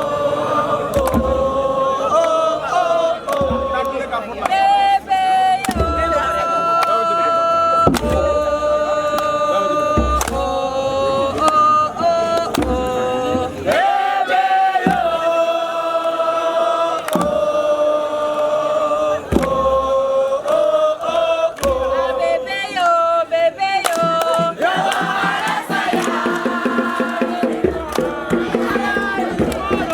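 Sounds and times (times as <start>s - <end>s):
group of voices chanting: 0.0s - 29.9s
low thumps: 0.8s - 2.0s, 3.2s - 4.1s, 10.0s - 13.9s, 14.8s - 15.4s, 24.6s - 29.9s.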